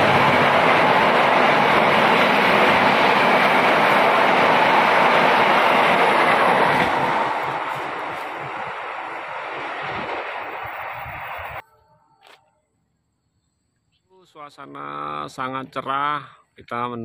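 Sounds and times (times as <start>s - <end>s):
train wheels rumbling on rails: 0.0s - 11.6s.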